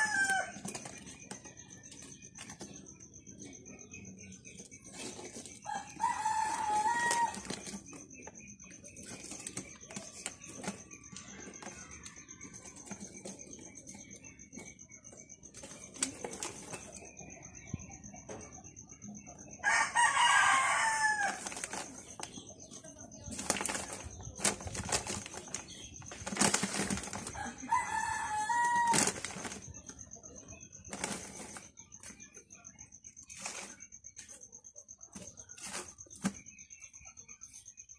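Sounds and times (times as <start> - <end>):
rooster crowing: 0.0 - 0.6, 5.6 - 7.5, 19.6 - 21.5, 27.3 - 29.2
clicks and rustles: 0.1 - 3.6, 4.4 - 17.3, 21.2 - 27.7, 28.6 - 32.4
rustling noise: 23.3 - 27.4, 30.9 - 31.7.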